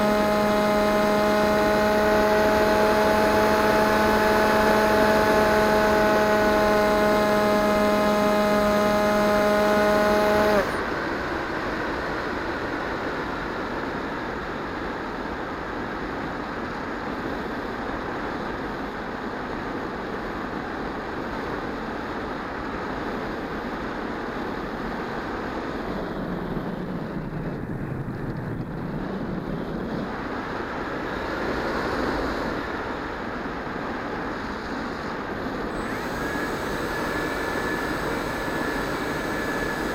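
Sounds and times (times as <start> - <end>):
electric model plane motor: 0.0 - 10.9, 34.5 - 39.9.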